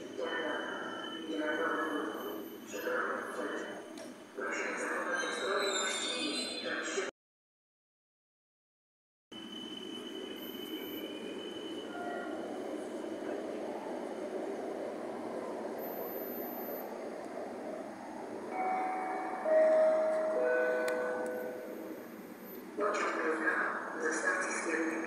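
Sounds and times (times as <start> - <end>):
steady high tones: 0.0 - 3.8, 9.4 - 14.9, 18.3 - 22.7
electric train rumbling: 0.0 - 7.1, 9.3 - 25.0.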